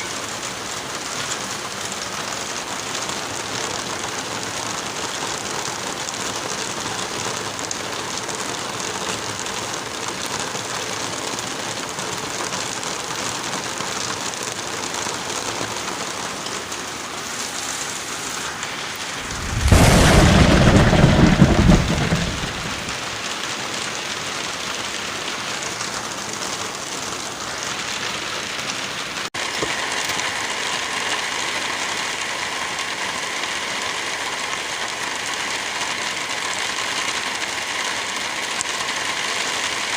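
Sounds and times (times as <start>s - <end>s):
heavy rain: 0.0s - 39.9s
thunder rumble: 19.1s - 23.2s.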